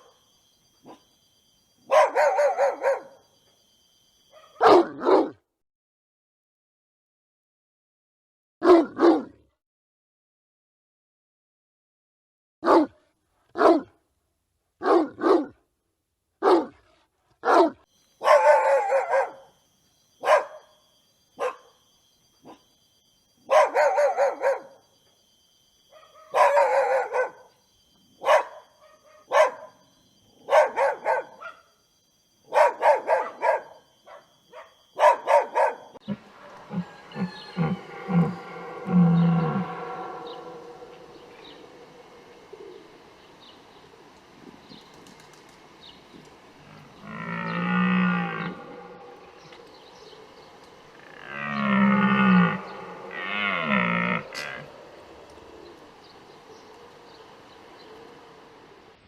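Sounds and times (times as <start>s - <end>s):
dog barking and yelping: 1.9s - 3.2s, 4.3s - 5.4s, 8.6s - 9.3s, 12.6s - 12.9s, 13.6s - 13.9s, 14.8s - 15.6s, 16.4s - 16.8s, 17.4s - 19.5s, 20.2s - 20.7s, 21.4s - 21.8s, 23.5s - 24.8s, 25.9s - 27.5s, 28.2s - 29.8s, 30.4s - 31.7s, 32.5s - 42.4s
low pulses: 36.0s - 44.7s, 46.3s - 59.0s.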